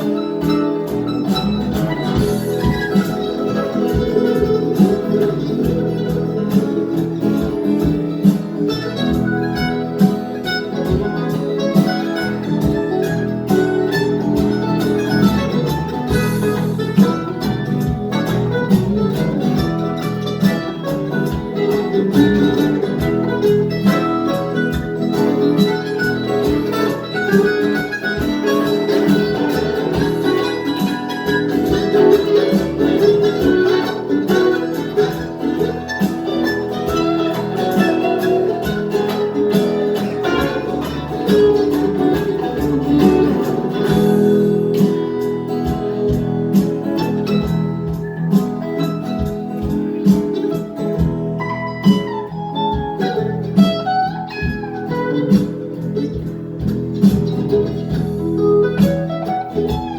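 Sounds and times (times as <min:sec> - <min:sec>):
acoustic guitars playing: 0:00.0 - 0:59.9.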